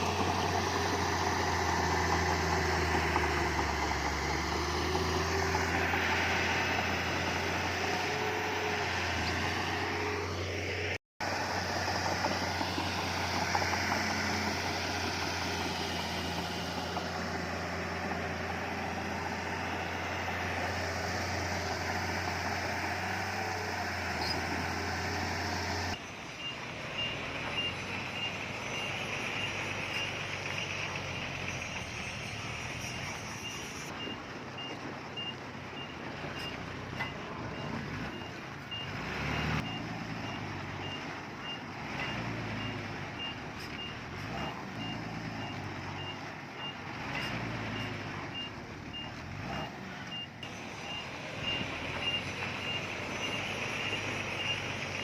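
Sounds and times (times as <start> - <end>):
heavy machinery diesel engines: 0.0 - 55.0
quieter engine running: 0.0 - 55.0
reversing alarm beeping: 31.7 - 55.0.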